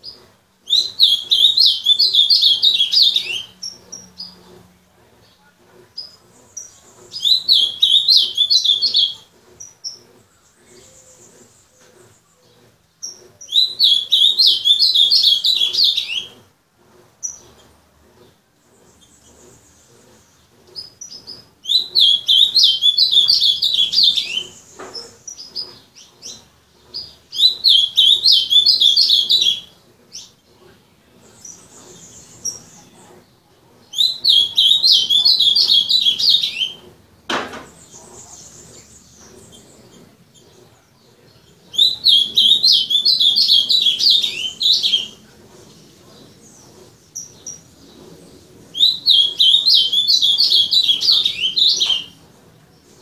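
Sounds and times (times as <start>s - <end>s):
bird singing warbled phrases: 0.0s - 4.6s, 5.2s - 16.5s, 18.9s - 37.0s, 37.7s - 53.0s
sharp knock: 37.3s - 37.8s.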